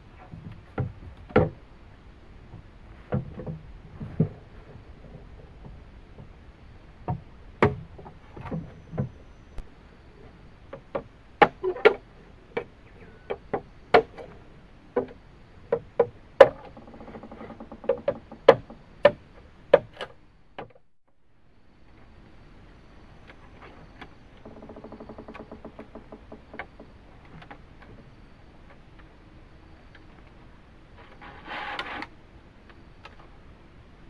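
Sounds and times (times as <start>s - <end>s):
bamboo knocks and clacks: 15.0s - 20.8s.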